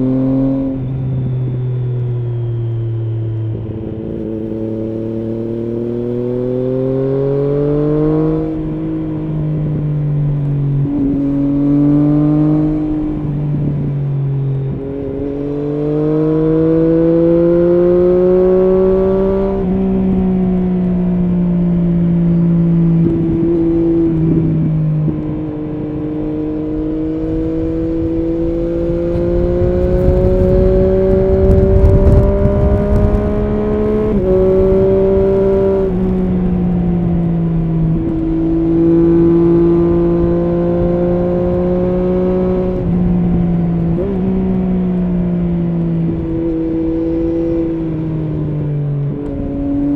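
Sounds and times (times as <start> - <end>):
low wind rumble: 0.0 - 49.9
motorcycle engine pulling: 27.1 - 37.1.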